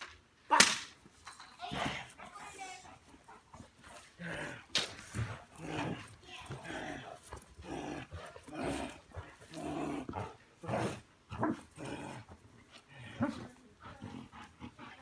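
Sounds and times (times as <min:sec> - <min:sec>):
dog growling: 0:03.9 - 0:15.0.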